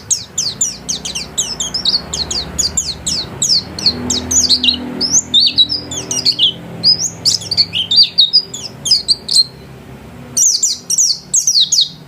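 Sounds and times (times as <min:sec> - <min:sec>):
bird twittering song: 0:00.0 - 0:12.0.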